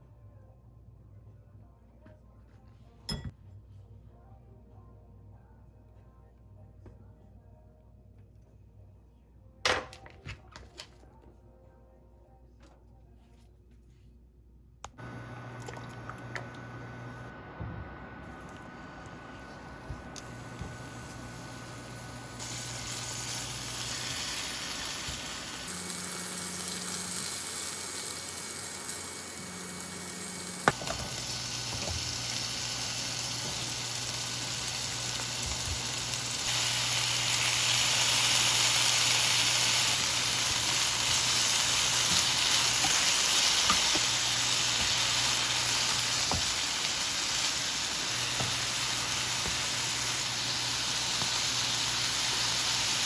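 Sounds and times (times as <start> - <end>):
food sizzling in a pan: 15.0 - 17.3, 18.3 - 53.0.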